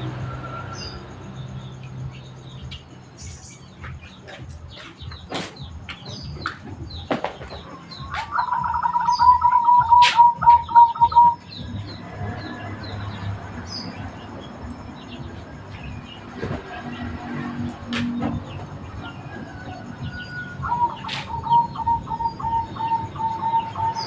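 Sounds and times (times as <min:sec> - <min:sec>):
small birds chirping: 0:00.0 - 0:24.0
dove cooing: 0:08.1 - 0:11.4, 0:20.6 - 0:24.0.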